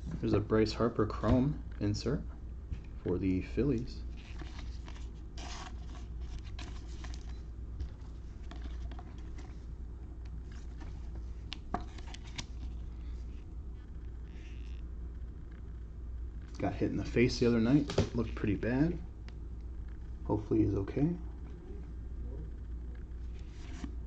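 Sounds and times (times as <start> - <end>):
low steady hum: 0.0 - 24.0
cards rustling and clicking: 4.1 - 9.6, 10.3 - 13.4.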